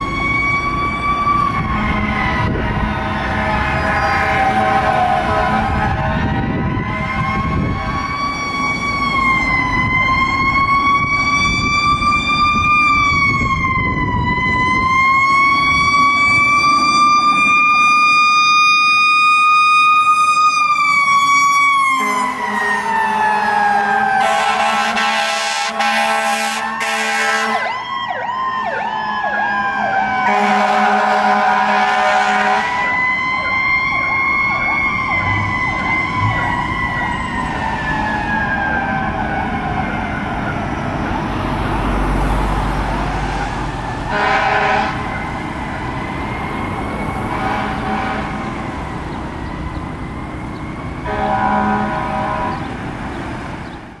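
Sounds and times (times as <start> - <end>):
electronic siren sweeps: 0.0 - 30.7, 31.8 - 51.7
siren rising and falling: 0.0 - 52.9
horn blasts: 2.9 - 6.2, 23.8 - 27.7, 30.2 - 32.8, 44.1 - 45.1, 47.3 - 48.6, 51.0 - 52.8.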